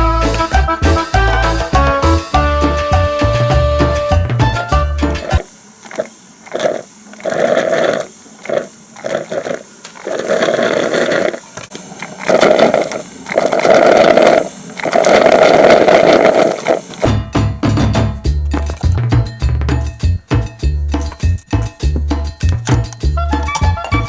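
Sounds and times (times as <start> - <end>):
coffee maker gurgling and sputtering: 4.9 - 17.2, 18.4 - 19.2.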